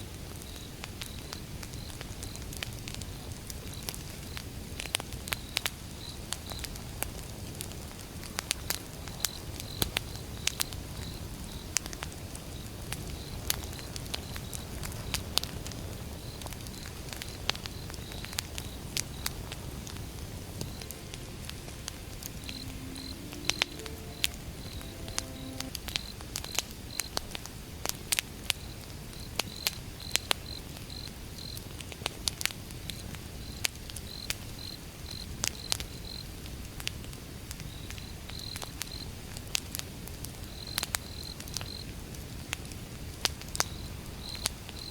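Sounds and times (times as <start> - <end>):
wood fire crackling and popping: 11.7 - 20.8.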